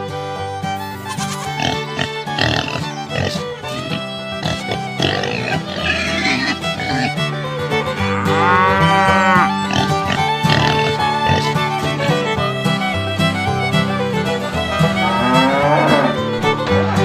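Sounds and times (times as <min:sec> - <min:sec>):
background music with held notes: 0:00.0 - 0:17.0
cow mooing: 0:01.0 - 0:07.2, 0:08.0 - 0:11.6, 0:14.8 - 0:17.0.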